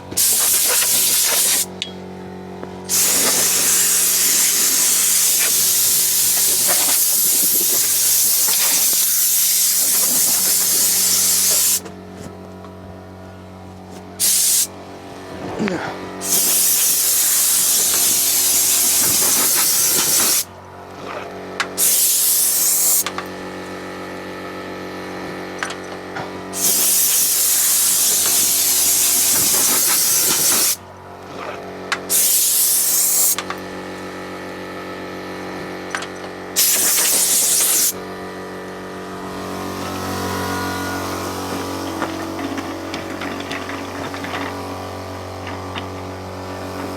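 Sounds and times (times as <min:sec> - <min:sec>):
steady motor hum: 0:00.0 - 0:46.9
compressed air hissing: 0:00.2 - 0:01.7, 0:02.9 - 0:11.8, 0:14.2 - 0:14.7, 0:15.6 - 0:20.4, 0:21.8 - 0:23.0, 0:26.6 - 0:30.8, 0:32.1 - 0:33.4, 0:36.6 - 0:38.0.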